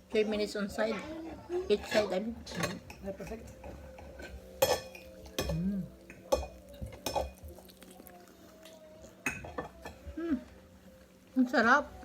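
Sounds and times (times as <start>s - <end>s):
cutlery clinking on a plate: 1.9s - 7.8s, 9.2s - 10.0s.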